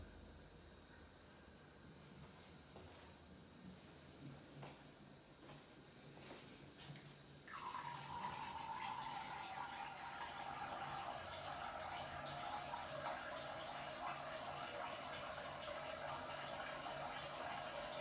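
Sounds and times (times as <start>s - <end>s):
water pouring into water: 7.5s - 18.0s.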